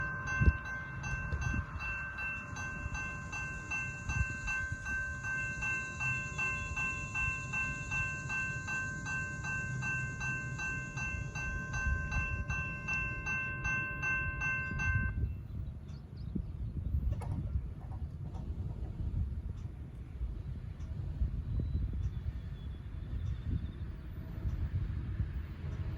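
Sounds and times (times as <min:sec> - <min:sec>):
railroad crossing bell ringing: 0:00.0 - 0:16.0
freight train rumble: 0:00.0 - 0:25.9.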